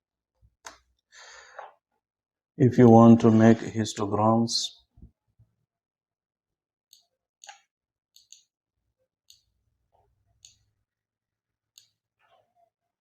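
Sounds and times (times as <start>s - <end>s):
computer mouse clicks: 6.9s - 8.5s, 11.8s - 12.0s.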